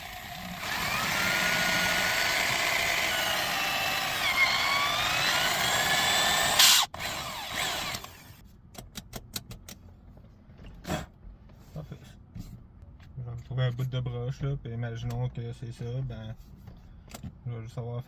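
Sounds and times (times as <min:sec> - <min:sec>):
power drill whining: 0:00.0 - 0:08.4.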